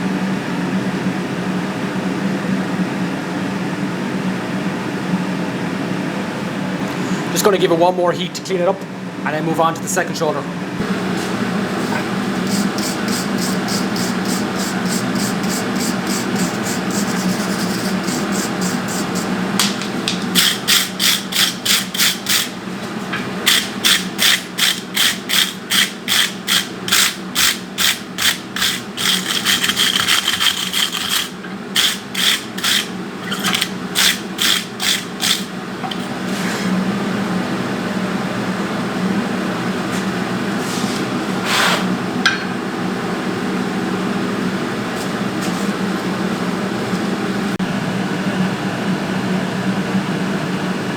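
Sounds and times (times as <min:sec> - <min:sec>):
steady hum: 0:06.8 - 0:50.9
wire brush scrubbing steel: 0:11.2 - 0:19.4, 0:20.3 - 0:22.6, 0:23.5 - 0:35.5.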